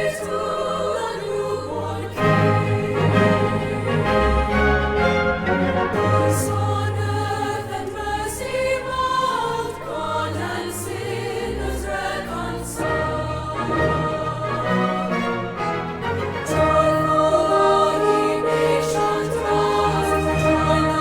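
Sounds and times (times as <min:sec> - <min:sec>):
youth choir singing: 0:00.0 - 0:21.0
symphony orchestra playing: 0:01.7 - 0:08.2, 0:11.1 - 0:21.0.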